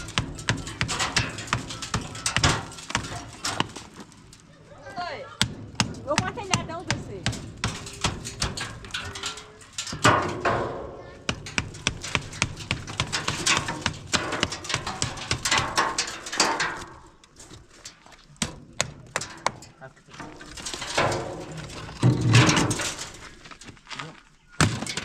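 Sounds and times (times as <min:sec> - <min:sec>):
voices talking: 0:04.4 - 0:08.1.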